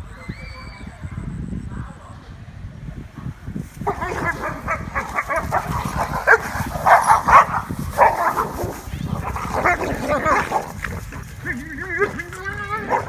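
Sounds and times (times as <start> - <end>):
dogs barking and yelping: 3.8 - 13.0.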